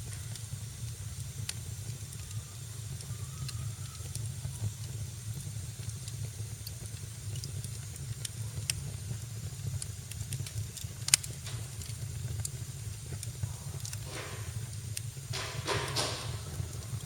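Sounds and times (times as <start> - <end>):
hissing from fire: 0.0 - 17.0
sharp pops from fire: 0.0 - 17.0
wood fire crackling: 0.0 - 17.0.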